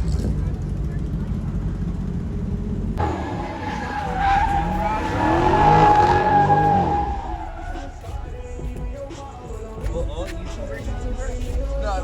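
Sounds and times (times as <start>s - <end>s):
car engine revving: 0.0s - 12.0s
road rumble: 0.0s - 12.0s
tire squeal: 3.0s - 8.8s.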